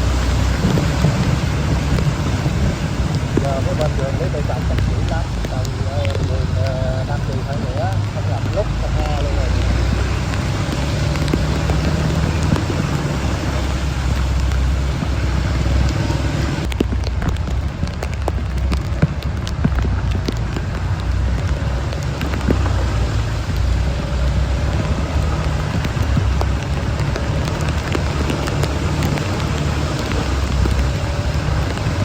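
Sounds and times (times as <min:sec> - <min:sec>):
heavy rain hissing: 0:00.0 - 0:32.0
vehicle engine humming: 0:00.0 - 0:32.0.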